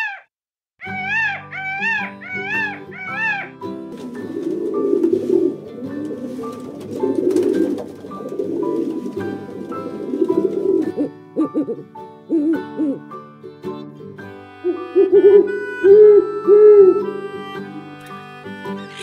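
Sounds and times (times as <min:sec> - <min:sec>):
low bird calls: 0:00.8 - 0:03.5
background music: 0:00.9 - 0:19.0.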